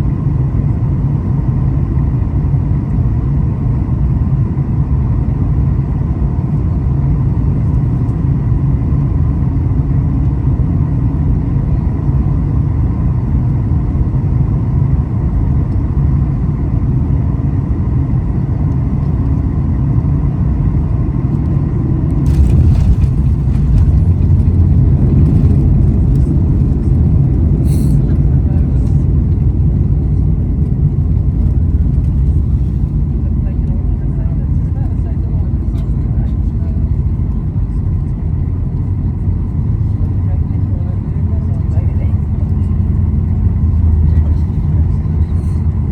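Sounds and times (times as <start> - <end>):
airliner cabin engine rumble: 0.0 - 45.9.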